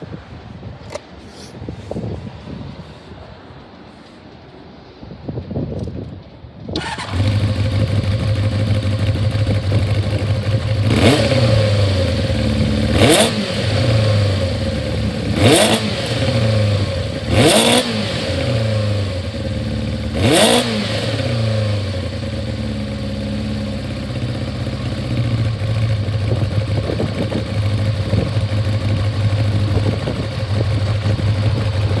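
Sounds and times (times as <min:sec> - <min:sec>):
engine revving: 0:06.8 - 0:32.0
motorcycle engine starting and idling: 0:06.8 - 0:32.0.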